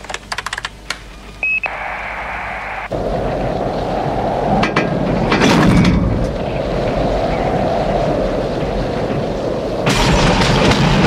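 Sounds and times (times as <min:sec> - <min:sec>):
train rumbling along track: 0:02.9 - 0:11.0
crashing burst: 0:09.8 - 0:11.0.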